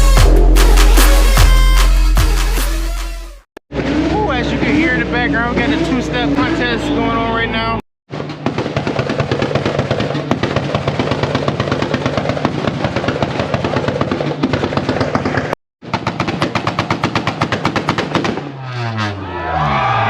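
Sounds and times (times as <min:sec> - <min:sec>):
car engines at rev limiter: 0:03.7 - 0:20.0
exhaust pops and bangs: 0:08.1 - 0:18.6.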